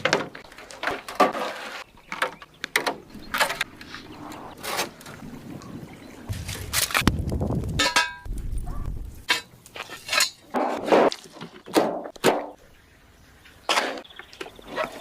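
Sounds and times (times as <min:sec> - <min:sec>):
scraping noises: 0:00.4 - 0:02.2, 0:03.3 - 0:05.3, 0:08.6 - 0:11.6.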